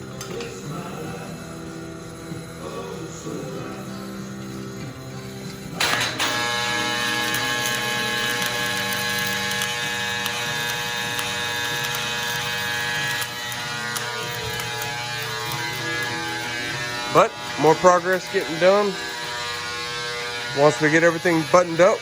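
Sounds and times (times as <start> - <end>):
background music: 0.0 - 22.0
power tool electric buzz: 0.0 - 22.0.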